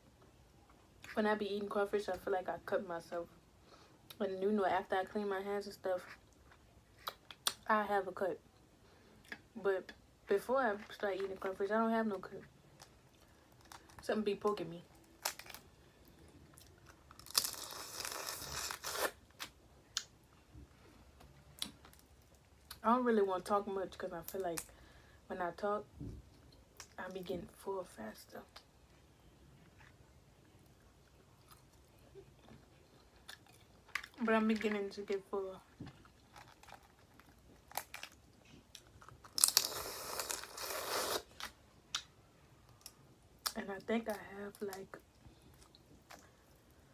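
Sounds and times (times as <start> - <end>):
shell cracking and peeling: 15.0 - 15.7, 16.8 - 19.5, 36.3 - 38.2.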